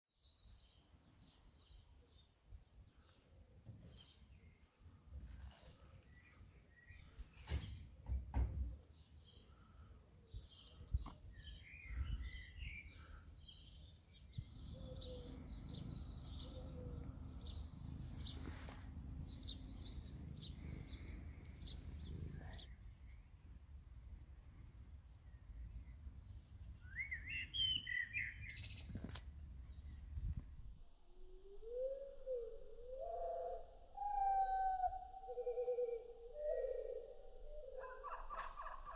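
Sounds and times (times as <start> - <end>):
small birds chirping: 0.2 - 30.7
low steady rumble: 14.5 - 22.7.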